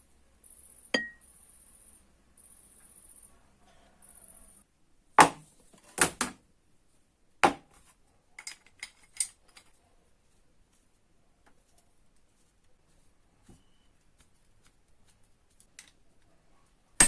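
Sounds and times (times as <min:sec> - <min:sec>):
metal tool knocking on hard surface: 0:01.0 - 0:01.2.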